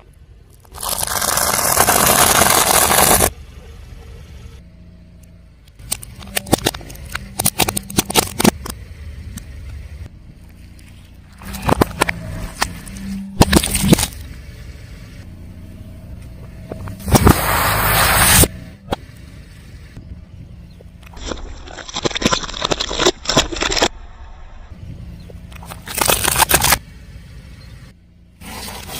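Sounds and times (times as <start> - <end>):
car engine hum: 0.0 - 21.4, 24.0 - 28.9
tyre crushing crunchy objects: 0.6 - 3.3, 11.3 - 14.3, 21.0 - 23.9, 25.6 - 26.8.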